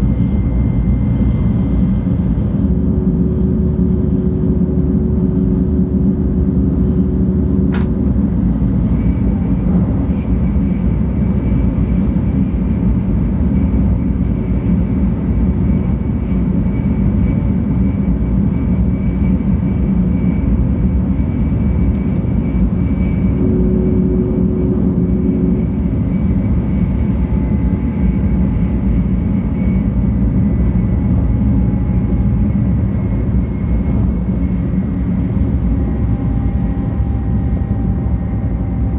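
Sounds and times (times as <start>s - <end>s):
train cabin rumble: 7.6s - 11.3s.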